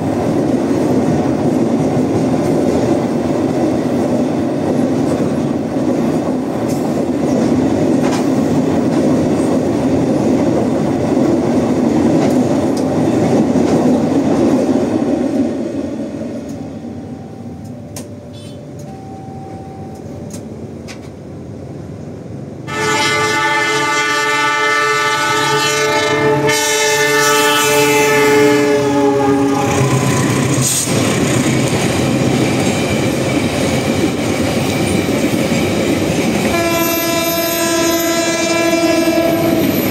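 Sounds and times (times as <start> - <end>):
train running past: 0.0 - 39.9
locomotive horn blast: 22.7 - 30.0, 36.5 - 39.8.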